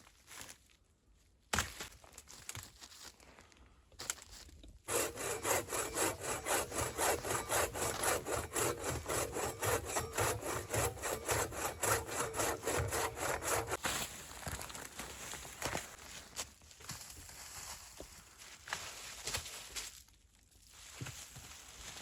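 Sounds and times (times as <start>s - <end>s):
hand saw cutting wood: 4.9s - 13.8s.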